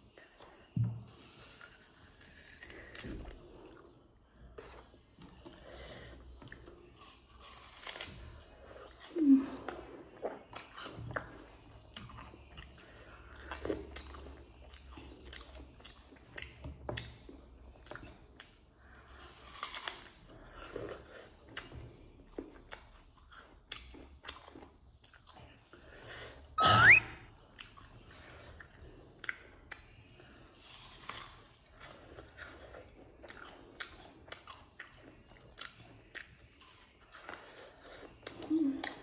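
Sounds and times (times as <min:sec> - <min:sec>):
chewing crisp apple: 0:00.0 - 0:39.0
brief rising-pitch sound: 0:26.6 - 0:27.2.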